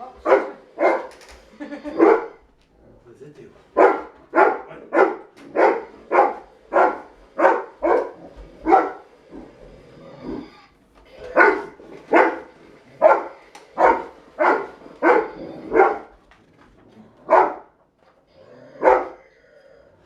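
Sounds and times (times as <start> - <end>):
dog barking: 0.2 - 1.1, 1.9 - 2.4, 3.8 - 9.4, 11.3 - 16.2, 17.3 - 17.8, 18.8 - 19.2.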